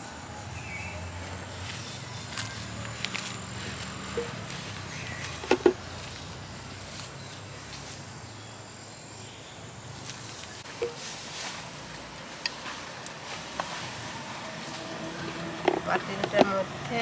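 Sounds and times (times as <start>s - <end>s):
sharp knocks: 5.4s - 5.9s.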